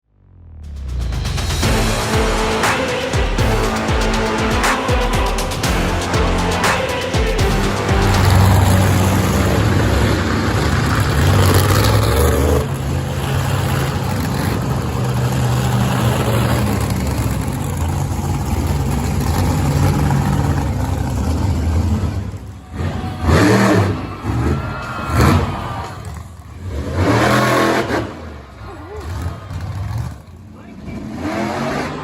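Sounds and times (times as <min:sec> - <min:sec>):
monster truck engine revving: 0:07.8 - 0:32.0.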